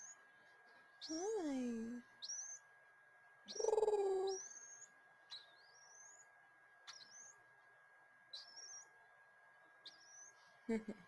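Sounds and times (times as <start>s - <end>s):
low hum-like voice: 0.5s - 2.1s, 3.5s - 4.5s.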